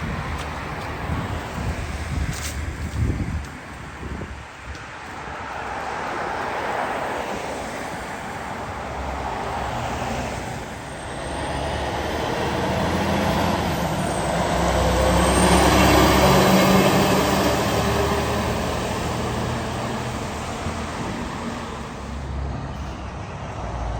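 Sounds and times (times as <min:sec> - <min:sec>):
road traffic passing: 0:00.0 - 0:23.9
diesel truck engine droning: 0:06.9 - 0:23.9.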